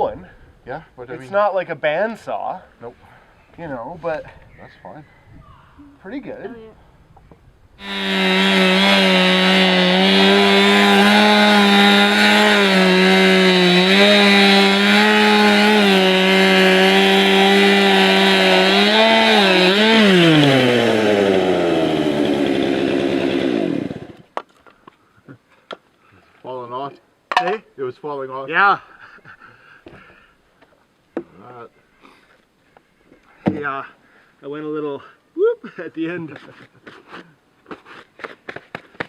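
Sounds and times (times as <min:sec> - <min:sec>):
chainsaw cutting log: 0:07.8 - 0:24.3.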